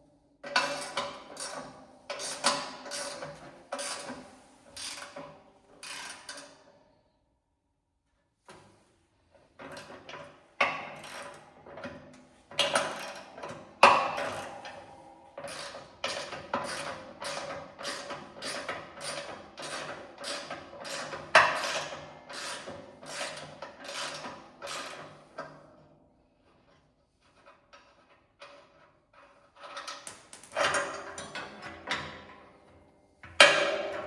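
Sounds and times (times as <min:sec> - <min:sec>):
ratchet wrench clicking: 0:05.8 - 0:06.5.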